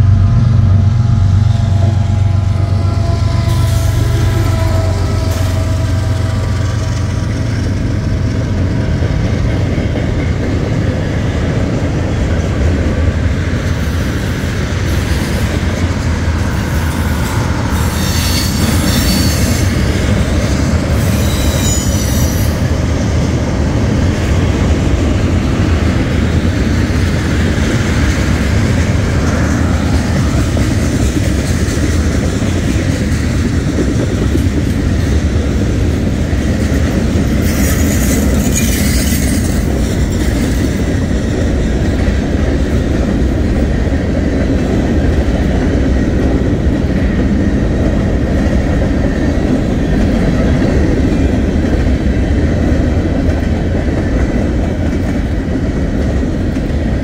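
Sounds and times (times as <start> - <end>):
train wheels rumbling and clattering: 0.0 - 57.0
train wheels squealing: 1.8 - 7.6, 16.4 - 22.7, 37.3 - 40.9.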